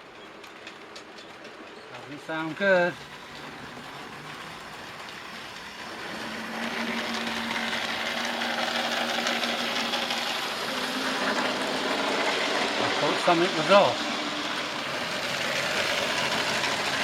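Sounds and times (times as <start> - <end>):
model train rattling: 0.0 - 17.0
man talking: 1.9 - 3.0, 12.8 - 14.2
motor hum: 2.7 - 17.0.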